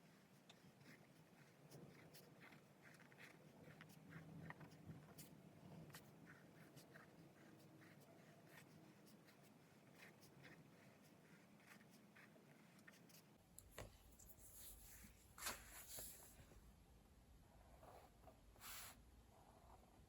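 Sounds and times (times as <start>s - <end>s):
pen scratching on paper: 0.0s - 13.3s.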